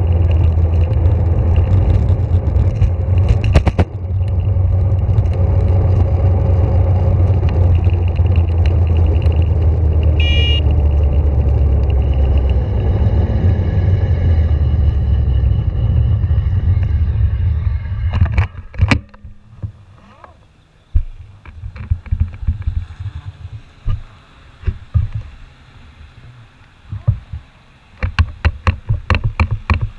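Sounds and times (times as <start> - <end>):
wind and road noise rumble: 0.0 - 29.9
short high beep: 10.2 - 10.7.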